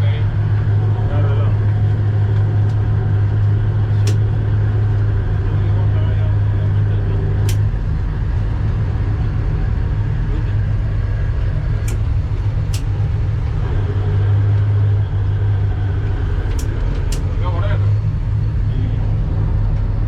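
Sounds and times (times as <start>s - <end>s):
boat engine droning: 0.0s - 20.0s
sharp clicks: 4.0s - 4.3s, 7.4s - 7.7s, 11.8s - 13.0s, 16.4s - 17.3s.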